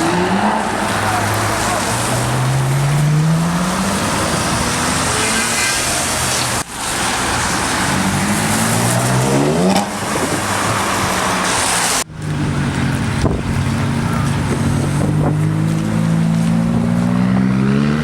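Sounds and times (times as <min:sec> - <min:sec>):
sports car engine accelerating: 0:00.0 - 0:18.0.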